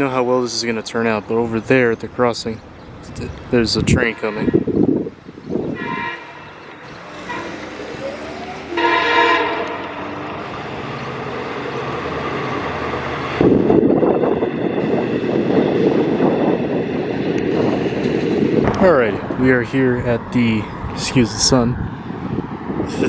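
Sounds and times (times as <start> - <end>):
train horn blast: 4.0 - 4.8, 5.7 - 10.4
loud rushing noise: 5.6 - 23.0.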